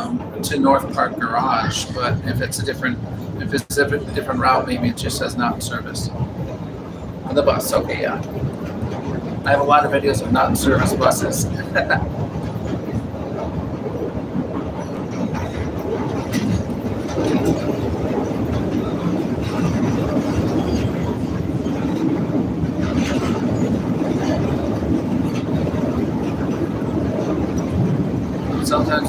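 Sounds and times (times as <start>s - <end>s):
train rumbling: 0.0s - 29.0s
wheels clacking over rail joints: 0.0s - 29.0s.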